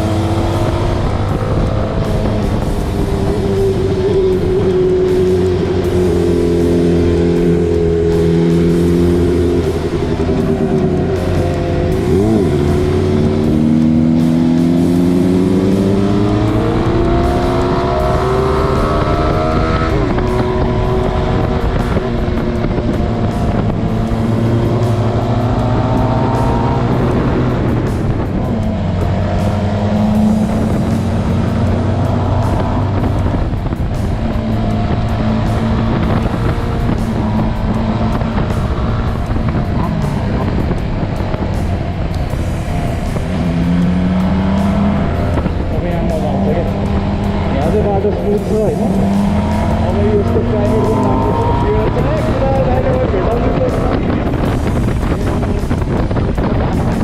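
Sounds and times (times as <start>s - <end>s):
motorcycle engine accelerating: 0.0s - 57.0s
wind and road noise: 0.0s - 57.0s.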